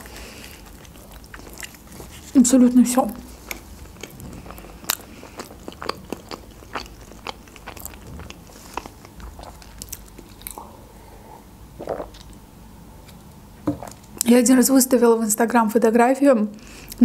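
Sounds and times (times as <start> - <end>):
chewing food: 0.0 - 2.4, 3.3 - 10.7
person drinking: 9.2 - 12.3.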